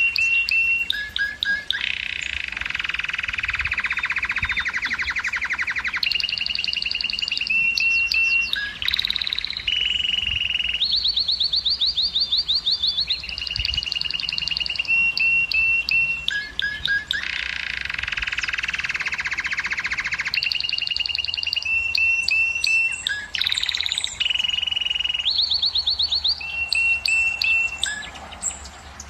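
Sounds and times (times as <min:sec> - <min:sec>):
canary singing rapid trills: 0:00.0 - 0:29.0.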